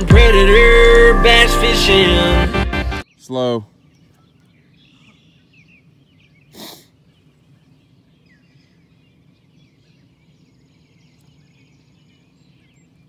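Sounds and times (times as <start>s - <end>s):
faint pond ambience: 3.0s - 13.0s
small birds chirping: 3.0s - 13.0s
loud puff of noise: 6.5s - 6.9s.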